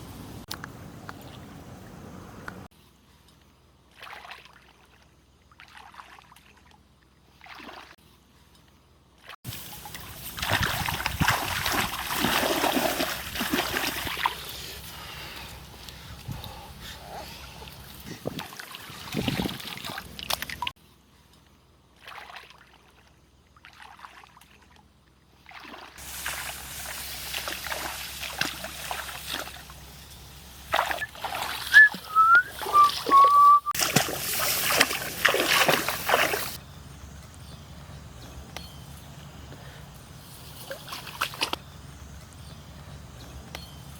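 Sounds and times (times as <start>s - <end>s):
water splashing and sloshing: 3.8s - 8.1s, 9.1s - 20.8s, 21.9s - 36.6s, 40.3s - 41.6s.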